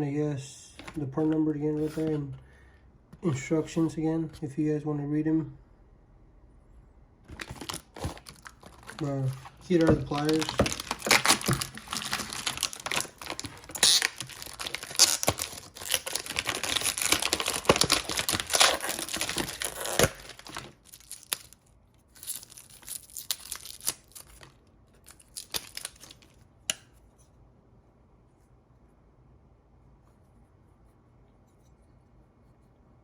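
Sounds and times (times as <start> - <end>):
packaging crinkling and tearing: 7.3 - 26.4.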